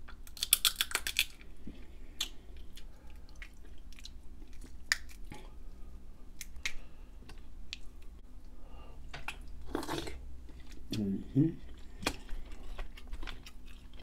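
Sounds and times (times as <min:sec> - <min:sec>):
close chewing mouth sounds: 0:09.3 - 0:14.0.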